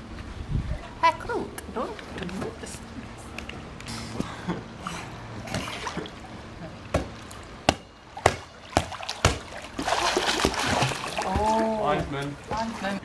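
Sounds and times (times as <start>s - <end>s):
faint water noise: 0.0s - 13.0s
ball being hit: 6.9s - 9.5s.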